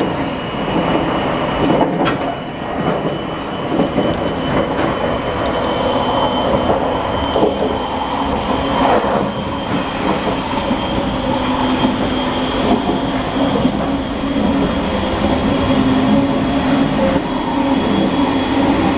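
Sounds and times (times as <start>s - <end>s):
train wheels rumbling and rattling: 0.0s - 18.9s.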